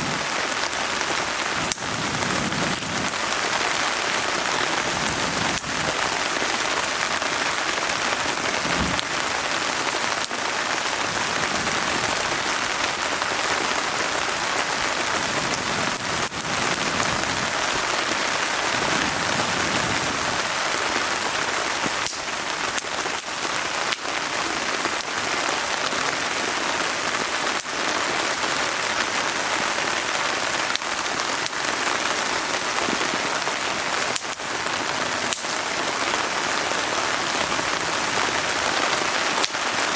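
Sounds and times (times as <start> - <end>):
wood fire crackling and popping: 0.0 - 26.3, 28.6 - 39.9
steady rain: 0.0 - 39.9.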